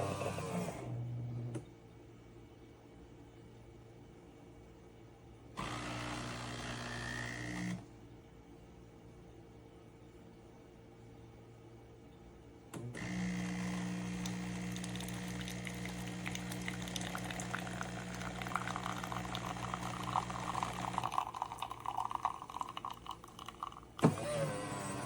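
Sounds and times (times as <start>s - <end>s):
espresso machine pump humming: 13.0s - 25.0s
liquid pouring into a cup: 13.7s - 24.1s.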